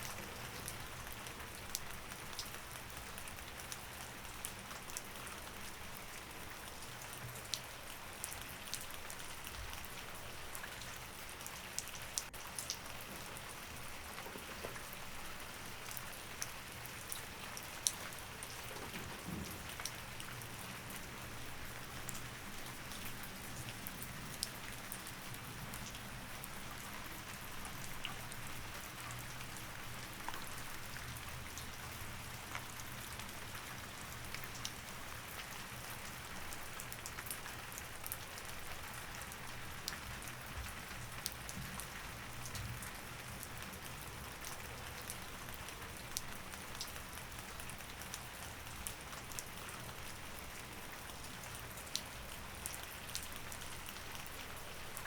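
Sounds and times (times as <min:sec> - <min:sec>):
close raindrops ticking: 0:00.0 - 0:55.0
steady rain falling: 0:00.0 - 0:55.0.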